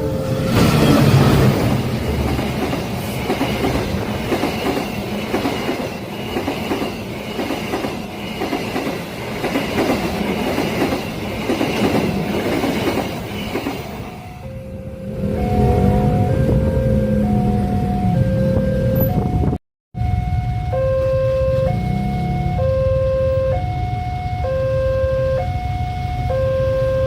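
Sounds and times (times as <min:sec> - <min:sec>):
train wheels clattering over rail joints: 0:00.5 - 0:14.0.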